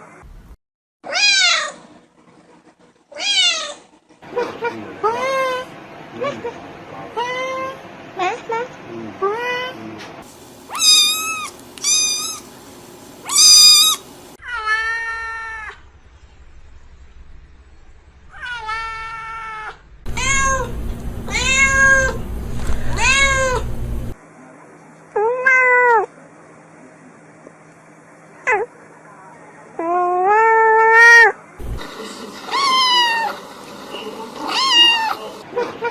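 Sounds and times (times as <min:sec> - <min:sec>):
cat meowing: 0:01.1 - 0:01.8, 0:03.2 - 0:03.8, 0:10.7 - 0:12.4, 0:13.3 - 0:15.7, 0:18.4 - 0:24.1, 0:32.5 - 0:33.4, 0:34.4 - 0:35.2
background hum: 0:15.6 - 0:24.2, 0:31.6 - 0:35.4.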